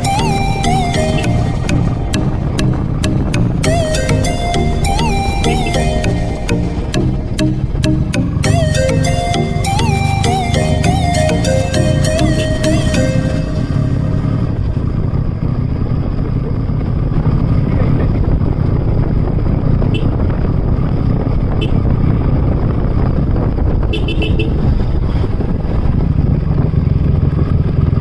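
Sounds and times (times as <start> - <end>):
motorcycle engine running: 0.0 - 28.0
wind rush on microphone: 13.6 - 28.0.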